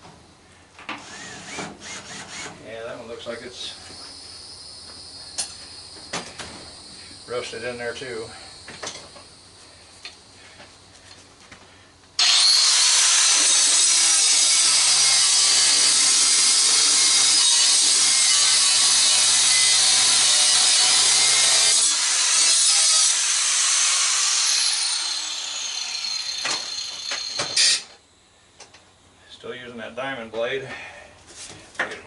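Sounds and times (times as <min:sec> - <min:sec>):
angle grinder cutting sheet metal: 0:12.2 - 0:27.9.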